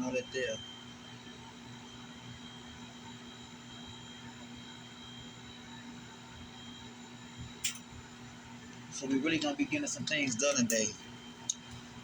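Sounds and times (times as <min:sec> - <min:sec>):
whirring machine hum: 0:00.0 - 0:12.0
sharp click: 0:07.6 - 0:07.8.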